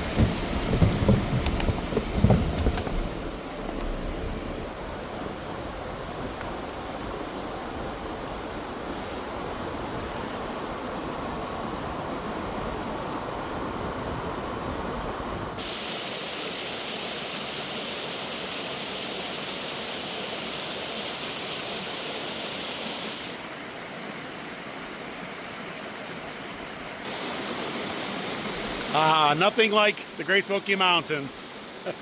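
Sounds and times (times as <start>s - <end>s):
road and engine rumble: 0.0s - 5.6s
mountain stream rushing: 0.0s - 32.0s.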